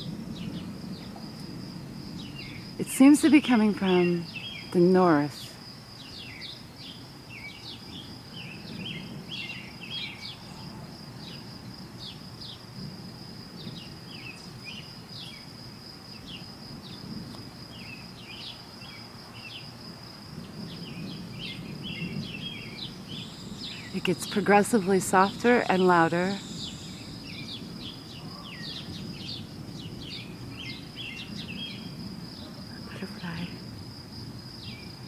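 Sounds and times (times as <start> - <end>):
birds chirping: 20.8 - 33.6
insect trilling: 21.9 - 29.5.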